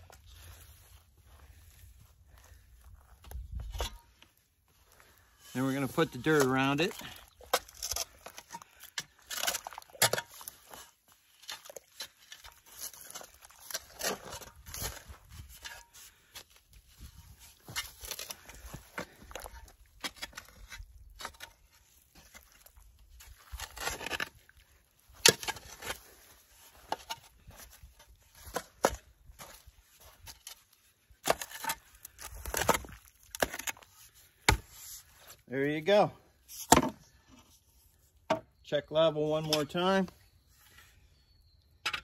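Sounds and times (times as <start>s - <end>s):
shovel scraping dirt: 5.3s - 35.4s, 36.4s - 37.6s.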